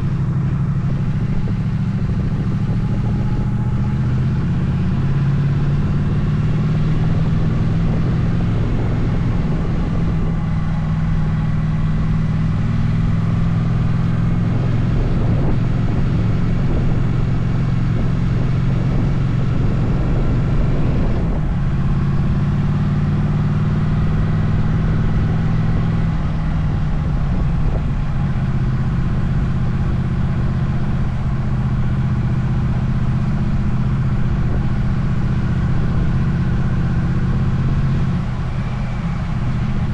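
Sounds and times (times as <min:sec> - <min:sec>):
motorcycle engine running: 0:00.0 - 0:39.9
road noise: 0:00.0 - 0:39.9
wind rushing: 0:06.6 - 0:13.4.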